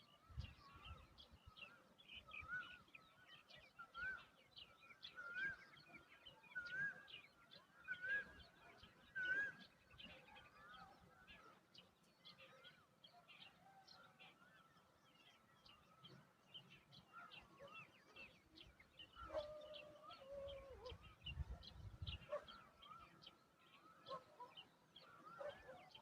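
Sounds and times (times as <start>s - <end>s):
birds chirping: 5.8s - 26.0s.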